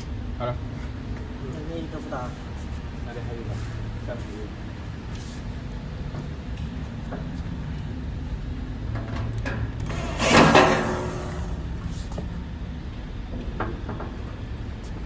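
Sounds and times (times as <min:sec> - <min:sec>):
loud scraping slide: 0:09.9 - 0:12.2.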